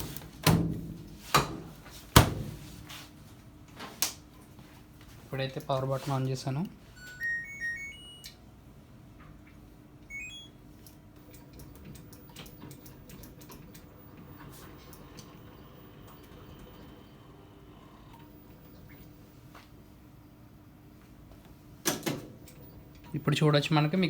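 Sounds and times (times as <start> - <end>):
electronic power-on chime: 7.0 - 8.3, 10.1 - 10.6
two-note button beep: 7.0 - 8.3, 10.1 - 10.6
washing machine hum: 10.1 - 24.0.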